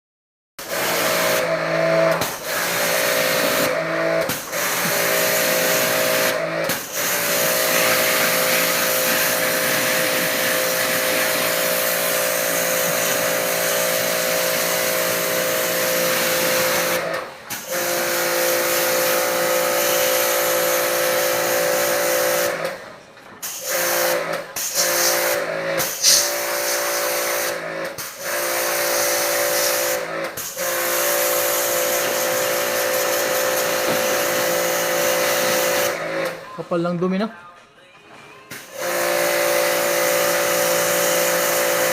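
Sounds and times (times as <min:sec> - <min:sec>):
pressure washer motor whine: 0:00.6 - 0:22.8, 0:23.6 - 0:36.5, 0:38.6 - 0:41.9
water spray hiss: 0:25.8 - 0:27.0.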